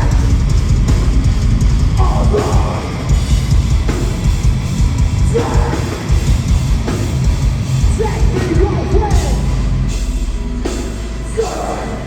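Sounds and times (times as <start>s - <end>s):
heavy metal band playing live: 0.0s - 12.0s
vocalist yelling: 5.3s - 6.1s.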